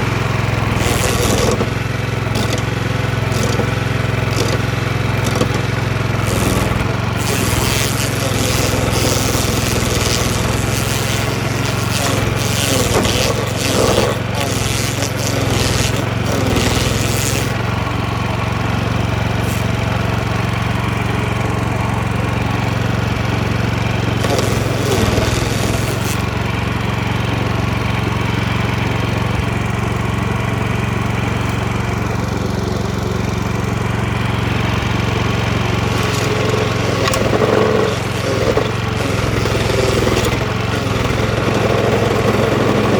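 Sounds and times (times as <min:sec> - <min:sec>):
wheel grinding into wood: 0:00.0 - 0:20.2, 0:23.8 - 0:26.6, 0:34.2 - 0:42.9
stump grinder engine running: 0:00.0 - 0:42.9.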